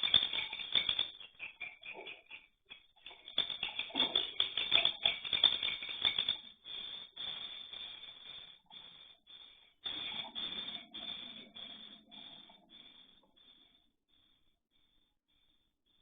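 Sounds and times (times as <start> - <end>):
bird chicks chirping: 1.2 - 4.2.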